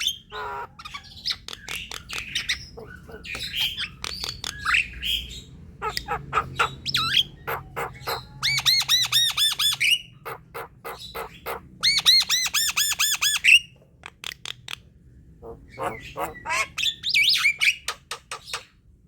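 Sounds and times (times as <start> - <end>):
bird harsh squawks and clicks: 0.0 - 4.9, 5.8 - 14.9.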